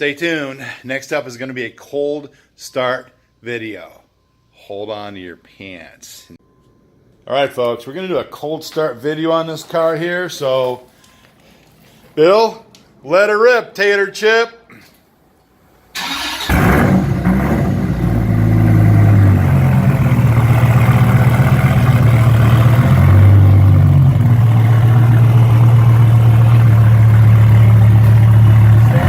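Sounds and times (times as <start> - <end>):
car engine fast idle: 16.0 - 29.0.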